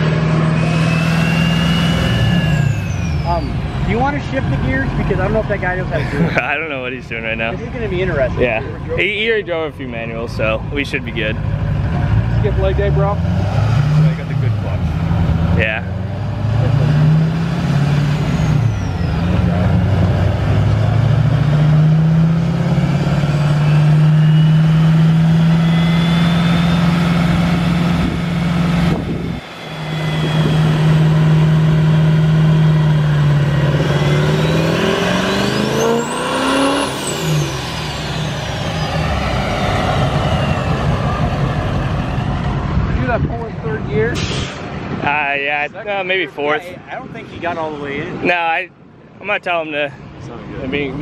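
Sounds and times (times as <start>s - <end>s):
diesel engine pulling hard: 0.0s - 48.7s
turbo whistle: 0.4s - 3.6s, 18.2s - 19.4s, 23.5s - 27.2s, 29.1s - 32.2s.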